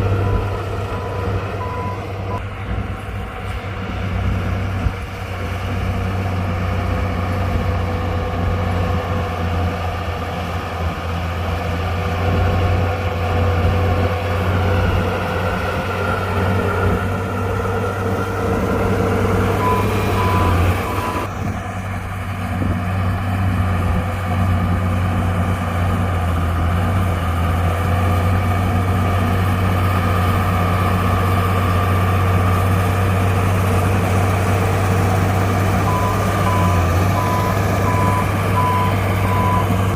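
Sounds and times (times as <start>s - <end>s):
bulldozer diesel engine running: 0.0s - 39.9s
reversing beeps: 0.2s - 2.4s, 19.5s - 21.3s, 35.8s - 39.8s.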